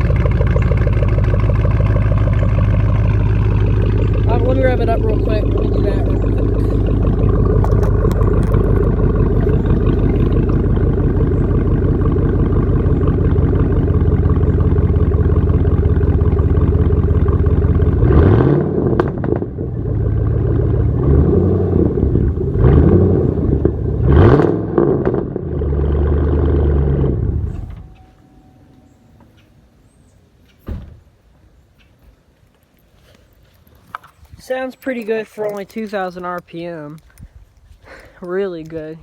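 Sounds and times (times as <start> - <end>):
exhaust popping and crackling: 0.0 - 28.0
truck engine idling and revving: 0.0 - 28.1.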